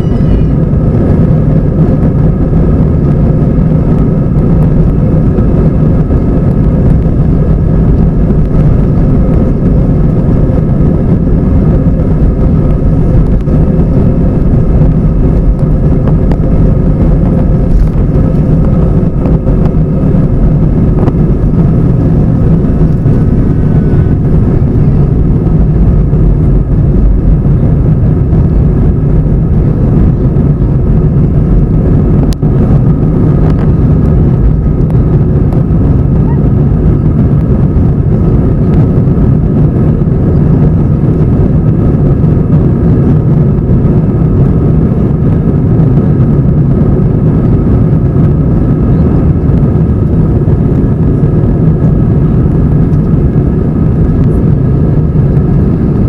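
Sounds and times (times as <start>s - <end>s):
airliner cabin engine drone: 0.0s - 56.0s.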